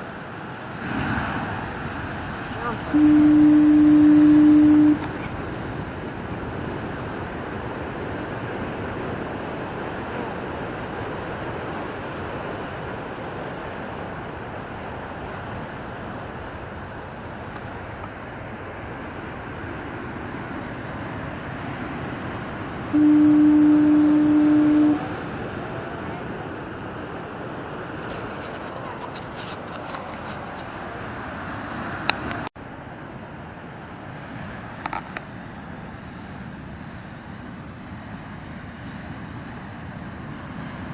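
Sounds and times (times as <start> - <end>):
heavy surf rushing: 0.0 - 40.9
foghorn blast: 2.6 - 5.1, 22.9 - 25.4.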